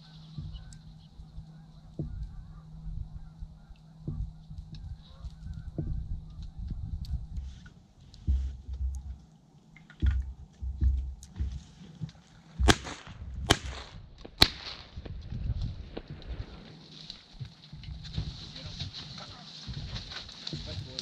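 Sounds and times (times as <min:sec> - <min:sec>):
wind buffeting microphone: 0:00.0 - 0:09.3, 0:10.0 - 0:21.0
shotgun shots: 0:12.6 - 0:15.1.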